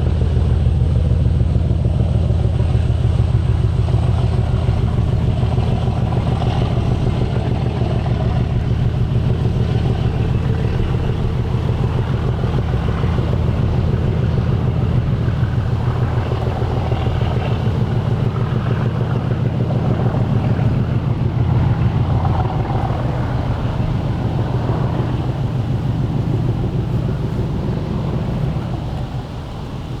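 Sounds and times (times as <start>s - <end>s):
passing train rumble: 0.0s - 30.0s.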